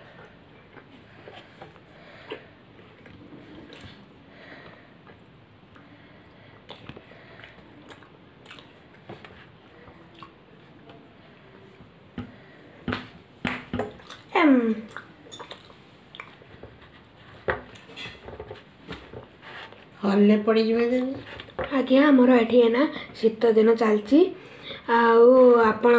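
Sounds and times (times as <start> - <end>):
child chewing food: 0.0 - 12.8, 13.8 - 19.9.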